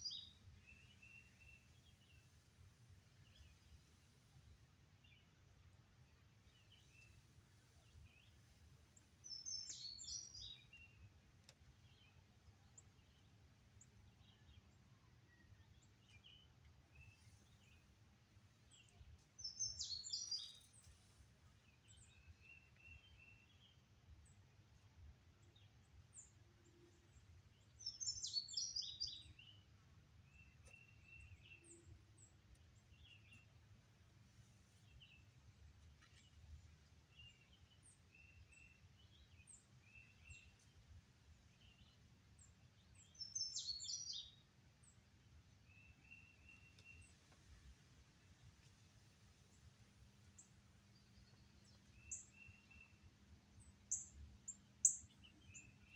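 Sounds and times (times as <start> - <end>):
faint bird chirps: 0.0 - 2.4, 9.2 - 11.1, 18.7 - 20.9, 27.0 - 29.7, 42.8 - 44.5
high bird song phrase: 43.0 - 44.4.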